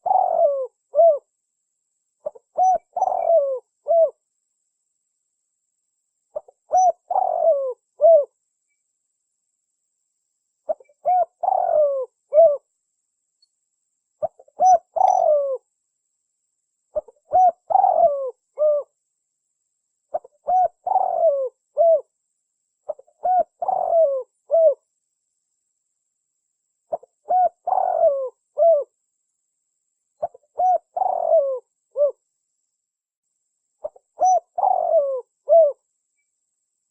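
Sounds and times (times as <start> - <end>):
dove cooing: 0.0 - 1.3, 2.2 - 4.2, 6.4 - 8.4, 10.7 - 12.7, 14.2 - 15.7, 17.0 - 18.9, 20.1 - 22.1, 22.9 - 24.9, 26.9 - 28.9, 30.2 - 32.2, 33.8 - 35.8.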